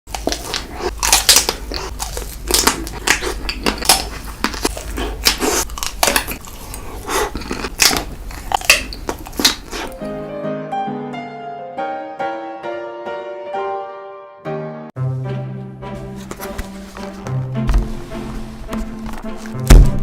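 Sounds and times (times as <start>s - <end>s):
crunching and biting food: 0.1s - 10.0s.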